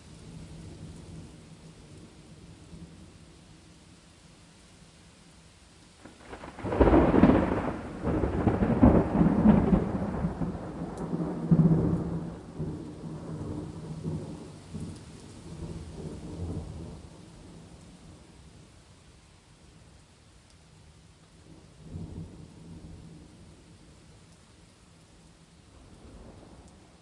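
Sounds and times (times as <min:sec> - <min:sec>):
steady rain: 0:00.0 - 0:27.0
thunder rumbling: 0:06.0 - 0:18.2.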